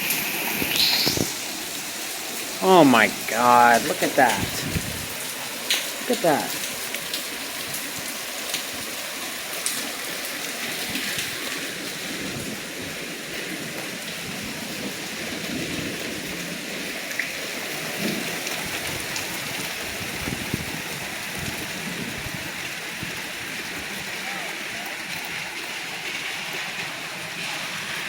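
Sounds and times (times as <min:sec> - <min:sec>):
heavy rain hissing: 0:00.0 - 0:28.0
hailstones ticking on hard surfaces: 0:03.1 - 0:28.0.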